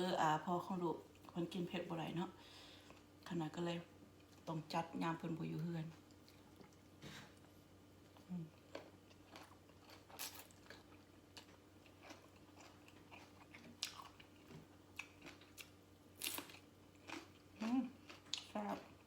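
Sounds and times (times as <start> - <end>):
chewing crunchy vegetables: 6.0 - 19.0.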